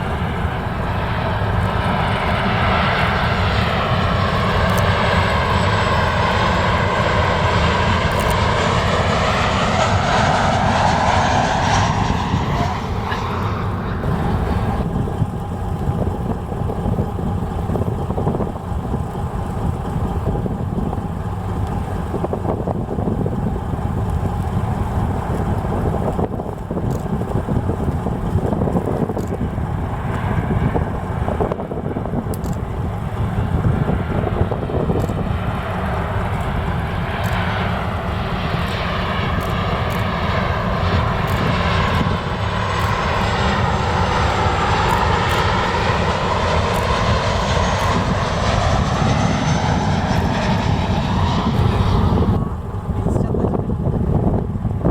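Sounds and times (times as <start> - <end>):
jet airliner engine noise: 0.0 - 54.9
steady low rumble: 0.0 - 54.9.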